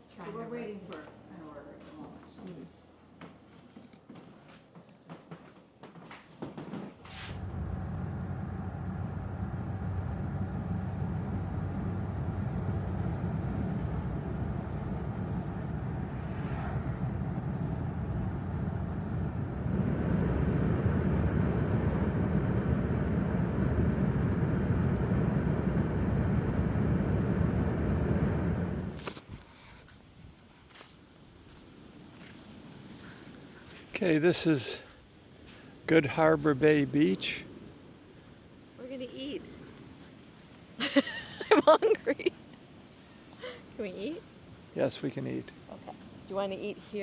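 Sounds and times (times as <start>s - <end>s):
vehicle road and engine noise: 7.0s - 29.2s.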